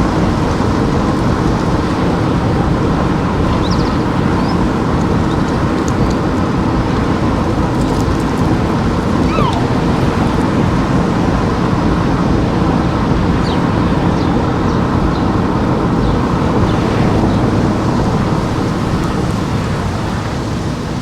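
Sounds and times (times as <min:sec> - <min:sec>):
car driving rumble: 0:00.0 - 0:20.3
faint high chirps: 0:09.2 - 0:10.4.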